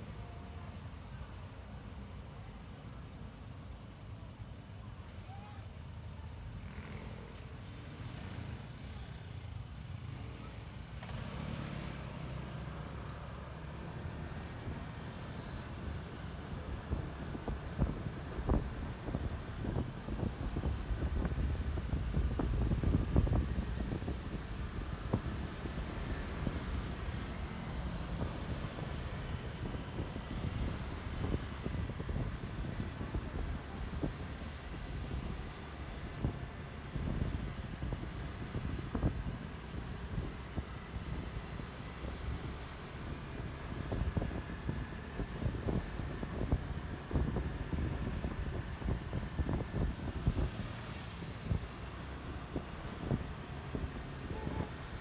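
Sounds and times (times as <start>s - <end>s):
road and wind noise: 0.0s - 55.0s.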